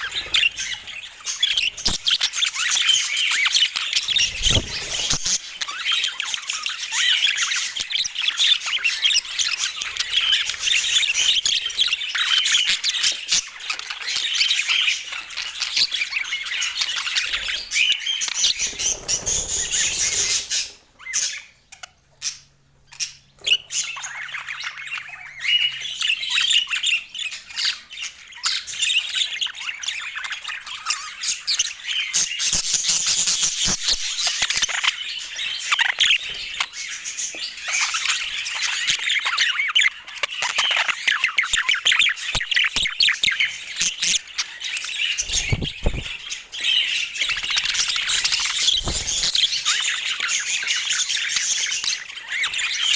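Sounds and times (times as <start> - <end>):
budgerigars chattering and chirping: 0.0 - 52.9.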